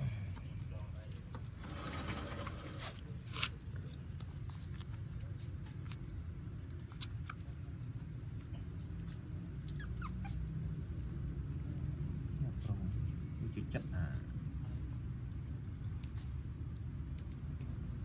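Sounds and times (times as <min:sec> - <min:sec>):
steady low hum: 0:00.0 - 0:18.0
rustling: 0:01.0 - 0:07.2
puppies squeaking: 0:09.6 - 0:10.5.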